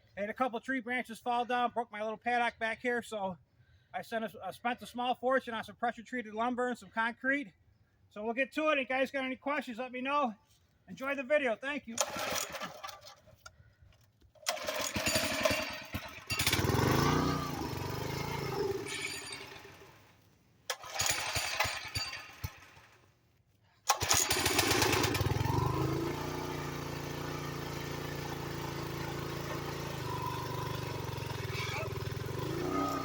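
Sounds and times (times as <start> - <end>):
small engine starting and idling: 11.9 - 23.1, 23.8 - 33.0.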